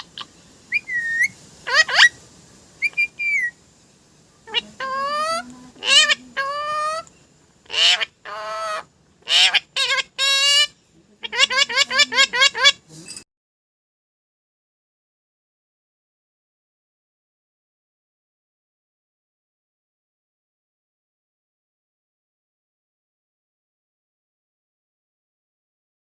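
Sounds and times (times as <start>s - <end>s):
parrot calling and whistling: 0.0s - 2.2s, 2.8s - 3.6s, 4.4s - 13.2s.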